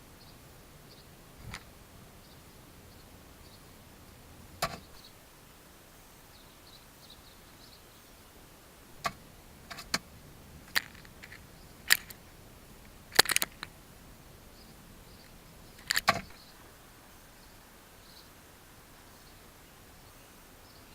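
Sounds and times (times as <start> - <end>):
faint birdsong chirps: 0.0 - 20.9
bird pecking: 9.0 - 16.4.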